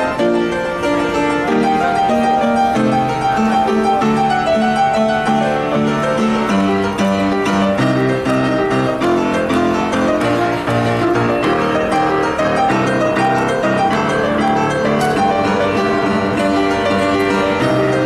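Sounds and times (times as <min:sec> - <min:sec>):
classical piano music: 0:00.0 - 0:18.0.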